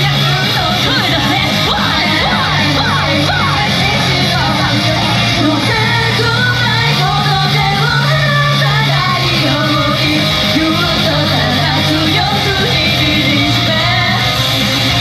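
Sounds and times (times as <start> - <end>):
band backing track with bass: 0.0 - 15.0
group singing rock-pop song: 0.0 - 15.0.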